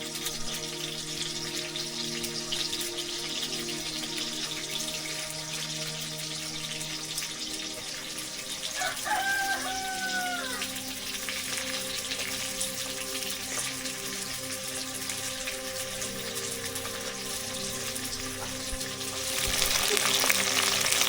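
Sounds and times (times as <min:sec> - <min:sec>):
rooster crowing: 0:08.7 - 0:10.8
steady hiss: 0:10.7 - 0:21.0.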